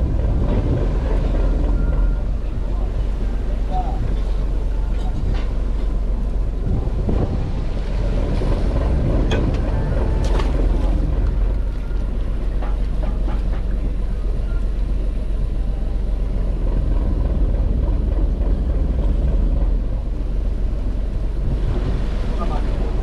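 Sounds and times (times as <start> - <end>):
wind on microphone: 0.0 - 11.7
boat engine drone: 0.0 - 23.0.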